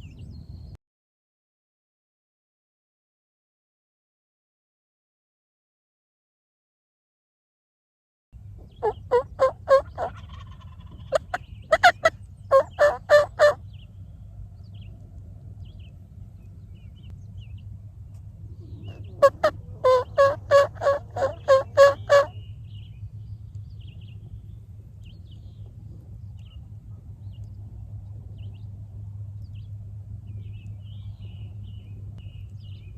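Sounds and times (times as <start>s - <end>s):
low rumble: 8.4s - 32.9s
turkey yelping: 8.8s - 13.6s, 18.8s - 22.3s.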